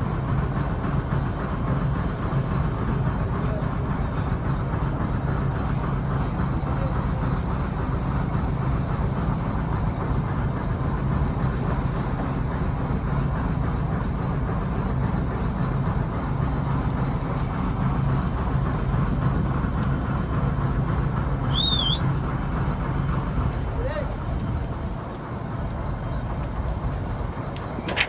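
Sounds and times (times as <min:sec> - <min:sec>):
diesel engine droning: 0:00.0 - 0:28.0
high whistle: 0:21.5 - 0:22.1.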